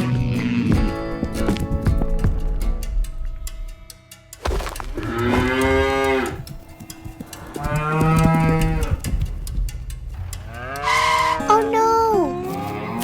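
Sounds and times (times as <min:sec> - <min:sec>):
cow mooing: 0:05.0 - 0:06.5, 0:07.2 - 0:09.1, 0:10.5 - 0:11.6.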